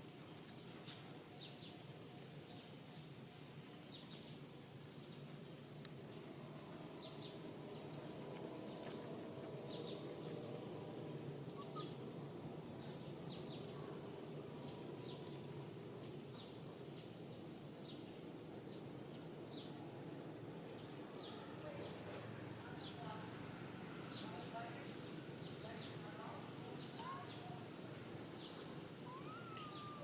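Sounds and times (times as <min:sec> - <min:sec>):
low background hum: 0:00.0 - 0:30.0
faint bird chirps: 0:11.3 - 0:12.0, 0:28.4 - 0:30.0.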